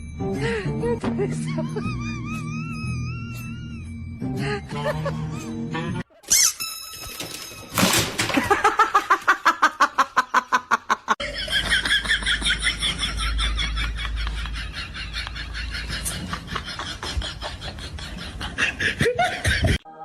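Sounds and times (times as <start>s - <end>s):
people laughing hard: 4.7s - 5.5s, 8.3s - 19.8s.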